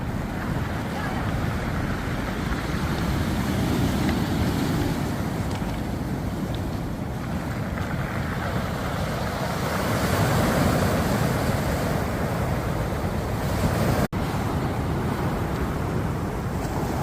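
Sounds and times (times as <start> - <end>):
waves rattling pebbles: 0.0 - 17.0.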